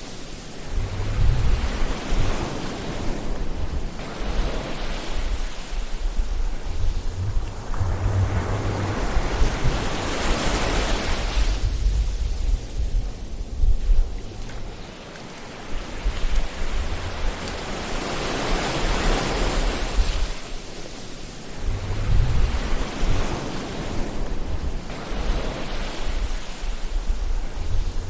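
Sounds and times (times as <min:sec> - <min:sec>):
ocean waves washing ashore: 0:00.0 - 0:28.0
low rumble: 0:00.6 - 0:04.6, 0:05.2 - 0:14.7, 0:21.6 - 0:23.2.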